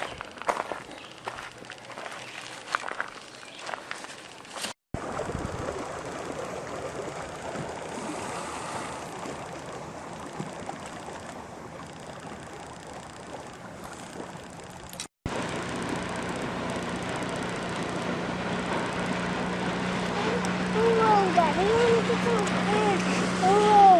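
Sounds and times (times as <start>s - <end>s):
rushing water: 15.4s - 23.9s.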